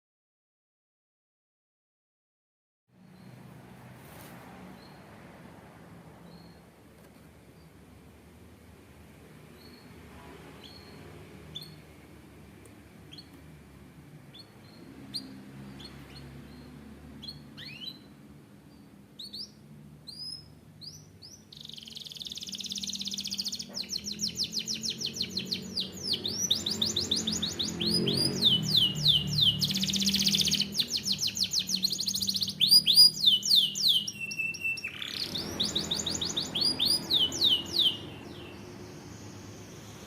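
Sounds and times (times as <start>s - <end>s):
canary singing: 9.5s - 12.1s, 13.0s - 13.6s, 14.2s - 40.0s.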